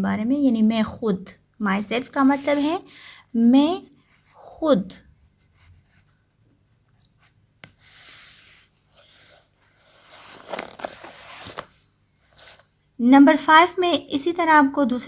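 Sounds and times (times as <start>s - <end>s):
paper rustling and scraping: 2.0s - 2.8s, 7.6s - 12.8s.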